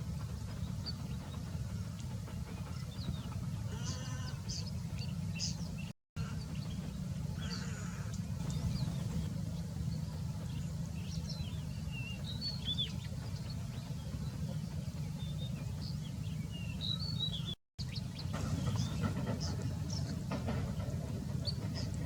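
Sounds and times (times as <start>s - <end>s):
small birds chirping: 0.0s - 22.0s
steady low rumble: 0.0s - 22.0s.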